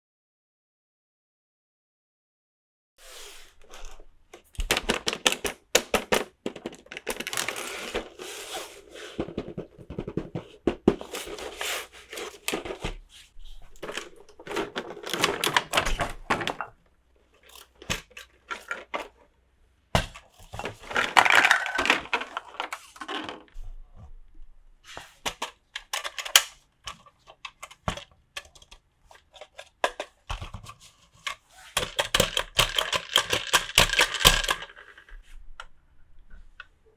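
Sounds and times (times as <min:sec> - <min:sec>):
plastic pieces clicking and tapping: 0:03.8 - 0:08.1, 0:13.8 - 0:16.8, 0:20.0 - 0:23.6, 0:25.2 - 0:35.1
packaging crinkling and tearing: 0:03.8 - 0:08.6.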